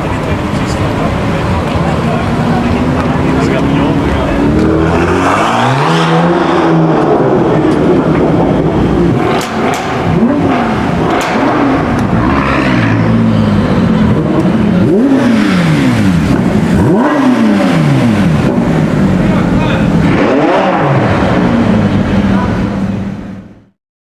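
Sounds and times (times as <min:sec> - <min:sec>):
car engines revving: 0:00.0 - 0:23.7
sharp engine pops: 0:09.3 - 0:10.1, 0:11.0 - 0:12.2.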